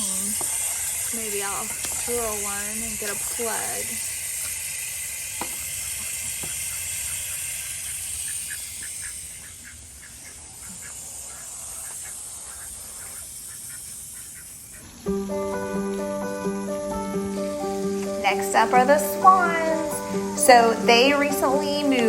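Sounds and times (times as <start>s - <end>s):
steady hiss: 0.0s - 22.0s
ducks quacking quietly: 5.8s - 15.0s
music: 15.1s - 22.0s.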